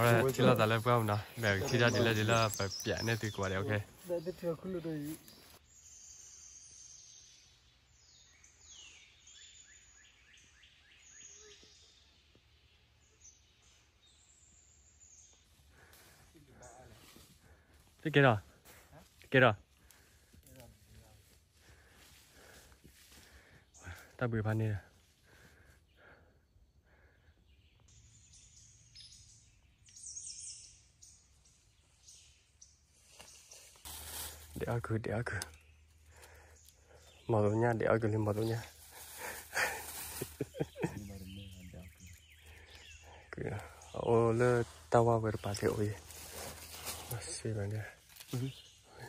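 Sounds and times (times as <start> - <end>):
high chirps: 0.0 - 6.4
faint birdsong whistles: 0.0 - 17.6, 25.5 - 34.4, 35.1 - 49.0
faint bird calls: 8.3 - 18.0.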